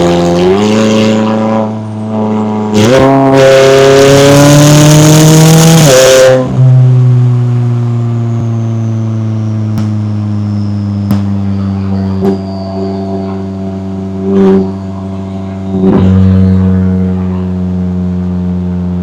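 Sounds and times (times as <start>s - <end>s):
car exhaust accelerating: 0.0s - 19.0s
exhaust pops: 6.4s - 12.5s.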